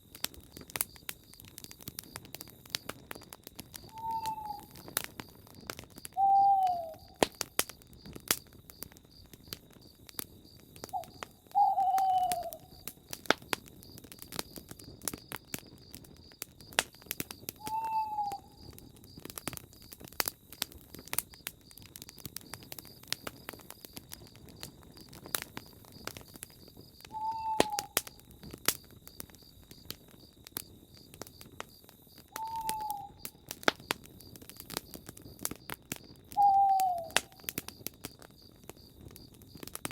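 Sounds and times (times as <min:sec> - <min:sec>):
campfire crackling and popping: 0:00.0 - 0:39.9
bird hooting: 0:03.9 - 0:04.8, 0:06.2 - 0:07.1, 0:11.0 - 0:12.7, 0:17.6 - 0:18.6, 0:27.1 - 0:28.0, 0:32.4 - 0:33.2, 0:36.4 - 0:37.4.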